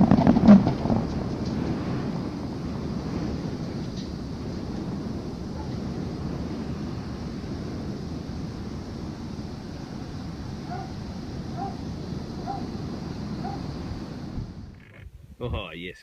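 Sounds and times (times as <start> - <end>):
low rumble: 0.0 - 15.6
wind noise on microphone: 0.0 - 15.7
animal barking: 10.6 - 12.8, 13.4 - 13.7.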